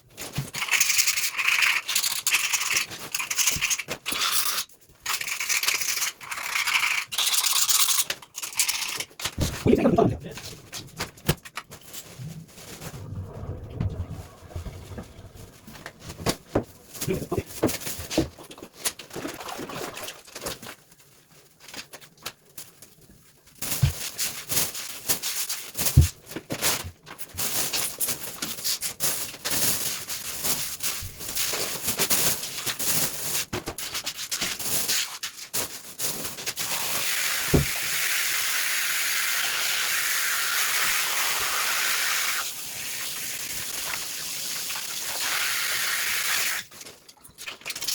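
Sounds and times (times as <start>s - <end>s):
water rushing: 12.8s - 17.5s.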